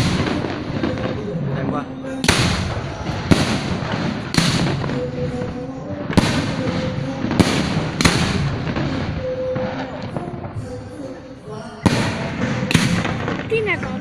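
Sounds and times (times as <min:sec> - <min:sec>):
fireworks crackling and rumbling: 0:00.0 - 0:14.0
firework shells bursting: 0:02.2 - 0:05.5, 0:06.1 - 0:10.3.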